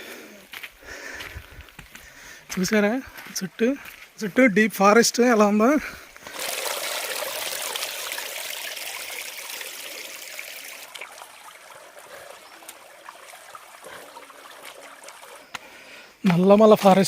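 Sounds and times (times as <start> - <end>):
forest stream rushing: 6.2 - 16.2.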